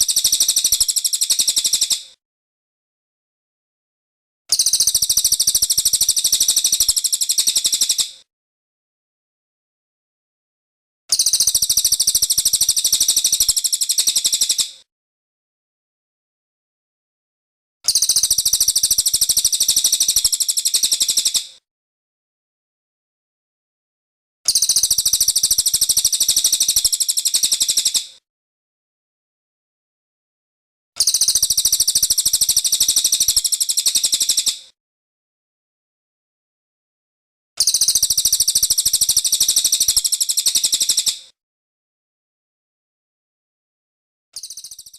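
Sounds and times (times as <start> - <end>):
songbird high-pitched trill: 37.6 - 41.1, 44.4 - 44.9
bird singing a high trill: 44.4 - 44.9.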